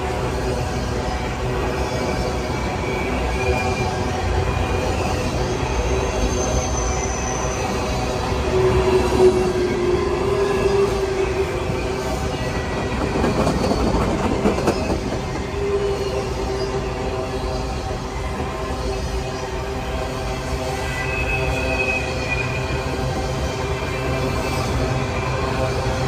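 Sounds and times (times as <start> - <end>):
train wheels rumbling on track: 0.0 - 26.0
wheels clacking over rail joints: 12.5 - 16.0.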